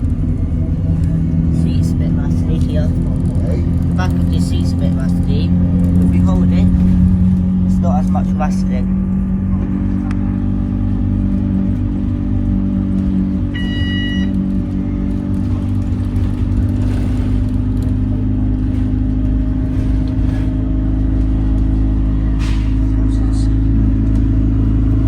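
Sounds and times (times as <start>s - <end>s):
vehicle engine humming: 0.0s - 25.0s
short high beep: 13.5s - 14.3s.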